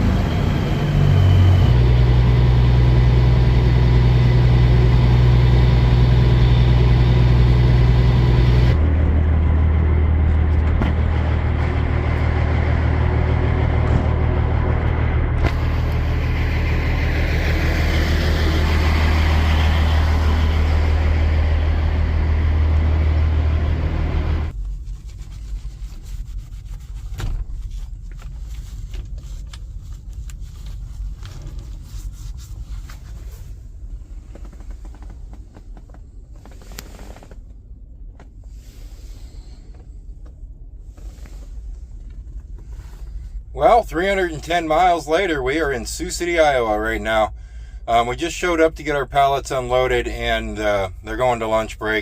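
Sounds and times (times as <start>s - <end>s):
truck engine drone: 0.0s - 24.6s, 38.6s - 52.0s
road noise: 0.0s - 37.6s.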